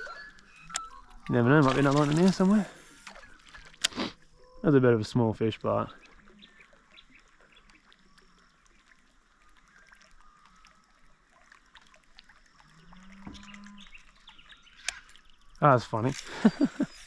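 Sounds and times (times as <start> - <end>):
water trickling and dripping: 0.0 - 17.0
small ticks: 6.0 - 15.6.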